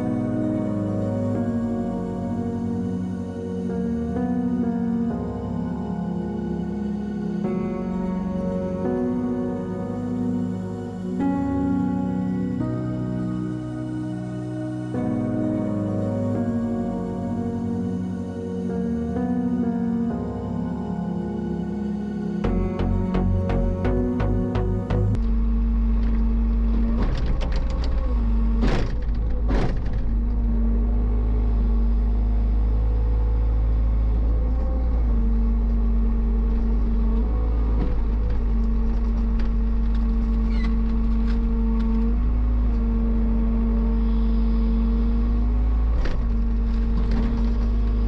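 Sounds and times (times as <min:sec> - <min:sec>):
heavy equipment engine running: 0:22.0 - 0:25.2.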